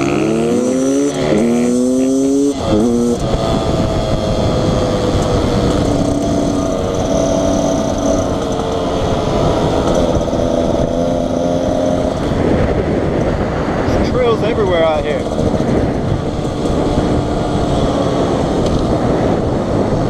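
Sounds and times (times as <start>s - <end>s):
dirt bike engine running: 0.0s - 20.0s
steady rushing noise: 0.0s - 20.0s.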